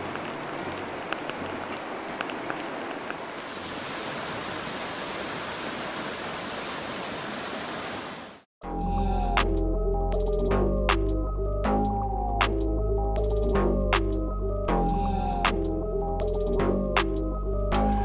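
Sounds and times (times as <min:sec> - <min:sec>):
sharp crackles: 0:00.0 - 0:03.4.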